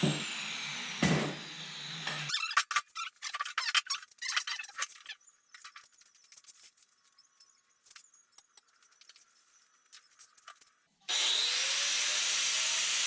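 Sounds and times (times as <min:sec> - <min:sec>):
sharp clicks and scrapes: 0:02.3 - 0:10.9.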